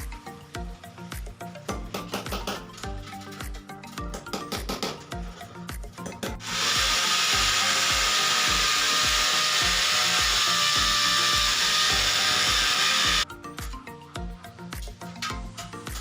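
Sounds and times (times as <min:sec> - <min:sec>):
background music with beat: 0:00.0 - 0:16.0
power drill running: 0:06.4 - 0:13.2.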